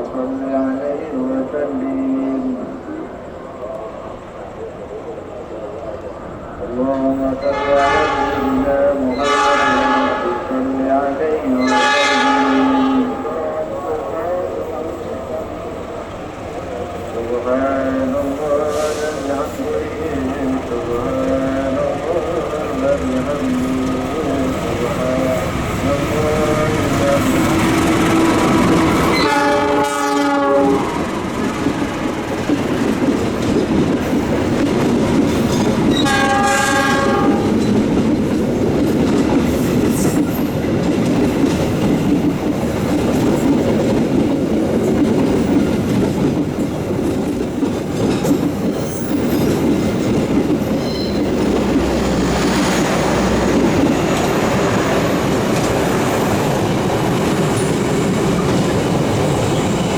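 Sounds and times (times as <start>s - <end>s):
train rumbling past: 0.0s - 59.9s
locomotive horn blast: 7.1s - 10.8s, 11.6s - 13.5s, 24.7s - 31.1s, 35.9s - 37.6s
wheels clacking over rail joints: 13.9s - 59.9s.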